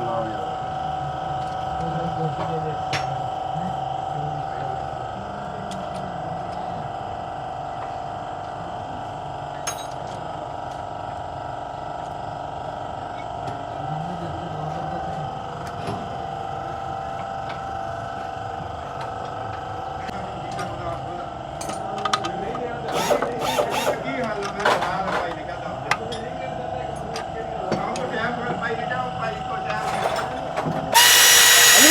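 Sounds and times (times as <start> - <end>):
faint voices: 29.7 - 31.9.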